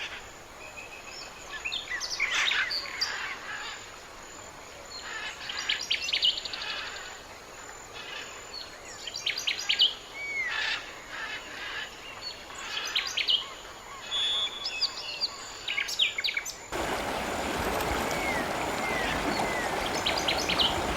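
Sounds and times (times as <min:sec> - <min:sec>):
small birds chirping: 0:16.7 - 0:20.9.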